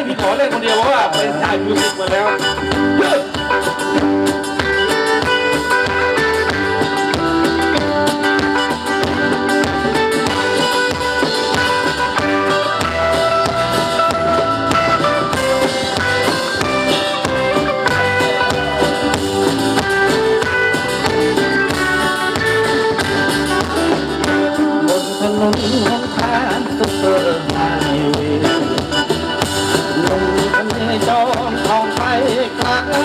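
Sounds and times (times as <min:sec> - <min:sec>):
drums steady beat: 0:00.0 - 0:33.0
electric guitar: 0:00.0 - 0:33.0.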